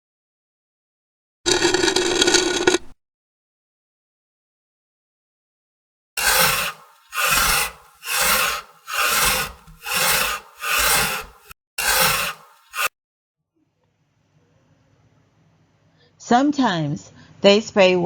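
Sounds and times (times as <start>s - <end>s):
rhythmic rasping strokes: 6.2s - 12.9s.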